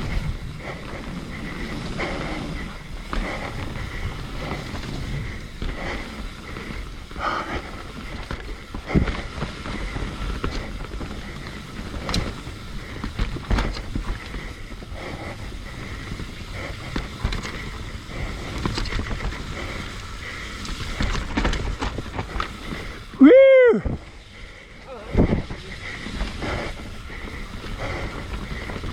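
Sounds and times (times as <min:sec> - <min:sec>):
bike tyres rolling on dirt: 0:00.0 - 0:28.9
wind rumbling on microphone: 0:00.0 - 0:28.9
bike clattering and knocking: 0:03.0 - 0:23.2.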